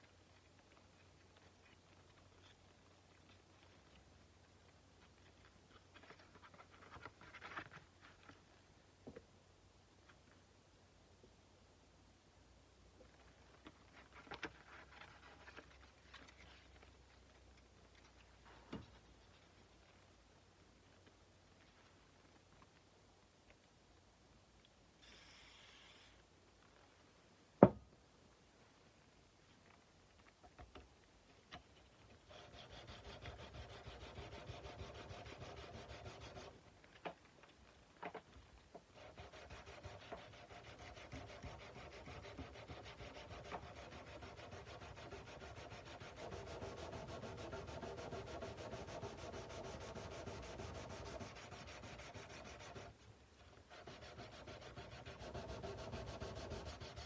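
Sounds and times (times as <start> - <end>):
sandpaper rubbing on metal: 32.3 - 36.6, 39.0 - 53.0, 53.7 - 57.0.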